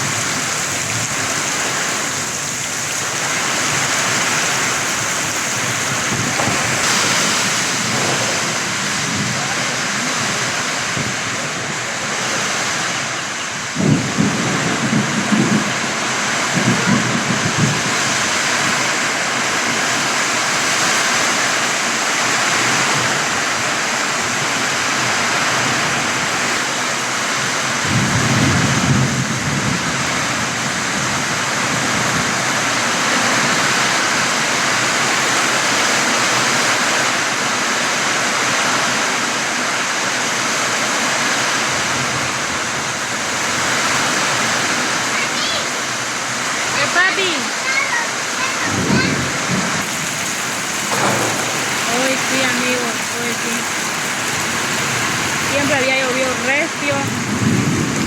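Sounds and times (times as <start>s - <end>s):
heavy rain falling: 0.0s - 58.0s
low rumbling thunder: 3.0s - 12.0s, 13.6s - 20.7s, 27.4s - 36.2s, 48.6s - 58.0s.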